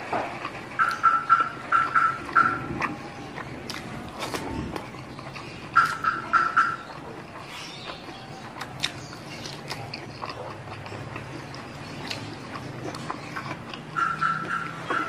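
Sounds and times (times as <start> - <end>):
close chewing and mouth sounds: 0.0 - 15.0
high-pitched animal calls: 0.8 - 3.4, 5.4 - 9.5, 13.0 - 15.0.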